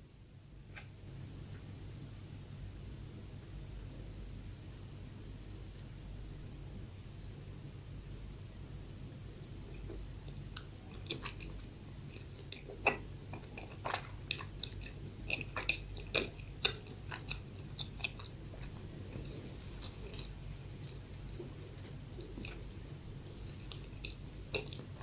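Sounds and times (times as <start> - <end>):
steady low hum: 0.0 - 25.0
chewing with wet mouth clicks: 9.7 - 21.5, 23.6 - 25.0.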